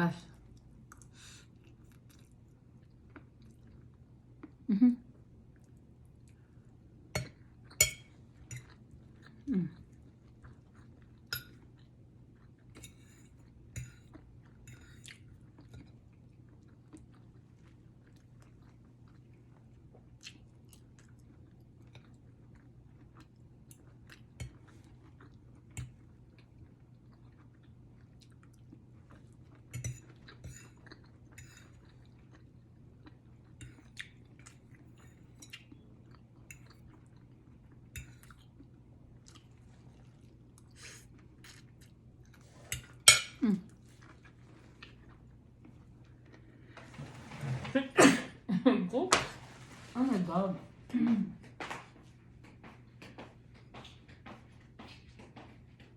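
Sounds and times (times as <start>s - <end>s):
low steady hum: 0.0s - 55.9s
cutlery clinking on a plate: 7.2s - 8.8s, 13.8s - 14.1s, 29.8s - 30.7s, 42.8s - 43.4s.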